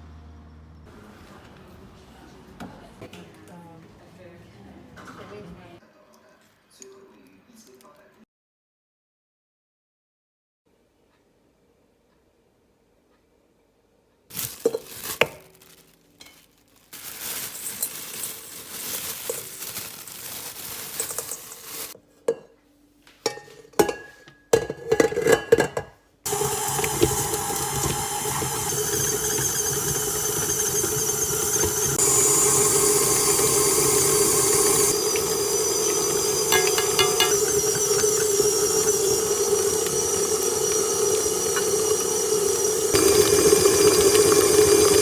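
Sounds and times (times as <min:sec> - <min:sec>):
dishes and cutlery clinking: 0:20.9 - 0:32.0, 0:33.0 - 0:42.1.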